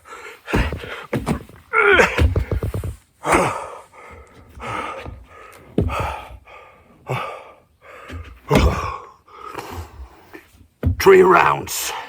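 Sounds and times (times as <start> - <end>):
man panting heavily: 3.2 - 10.3.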